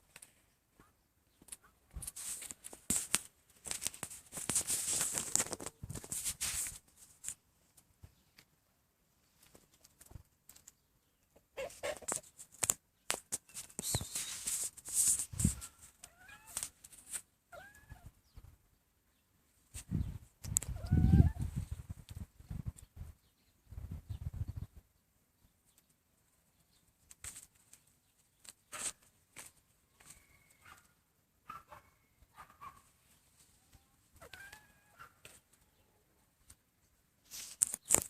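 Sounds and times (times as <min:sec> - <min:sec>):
rustling noise: 0:00.0 - 0:08.5, 0:11.7 - 0:17.3, 0:19.6 - 0:24.7, 0:27.0 - 0:30.8, 0:37.2 - 0:38.0
chickens clucking: 0:11.3 - 0:12.3.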